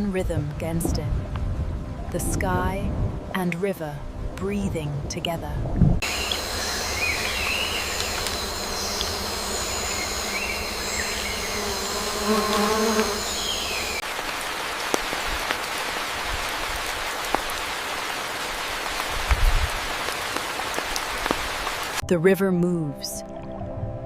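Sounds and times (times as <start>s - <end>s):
water drips: 6.0s - 9.2s, 14.0s - 22.0s
high-pitched insect chorus: 6.0s - 14.0s
falling water hiss: 6.0s - 22.0s.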